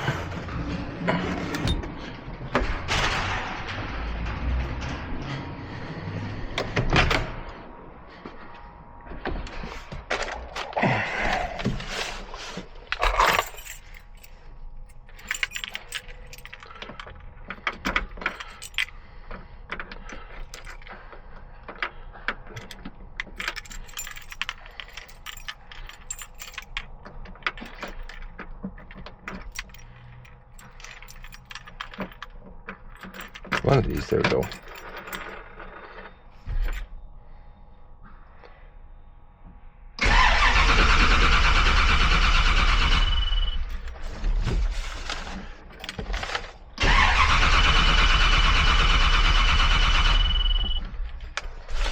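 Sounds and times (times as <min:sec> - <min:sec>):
tools scraping clatter: 0:00.0 - 0:06.4, 0:11.8 - 0:14.4, 0:23.3 - 0:36.8, 0:43.7 - 0:46.7, 0:51.3 - 0:51.9
hand tools clinking: 0:33.0 - 0:35.3.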